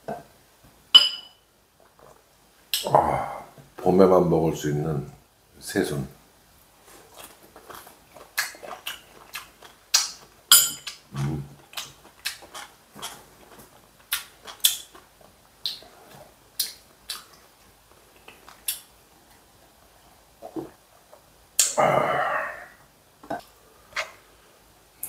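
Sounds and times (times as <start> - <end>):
man chewing with open mouth: 6.9 - 19.5.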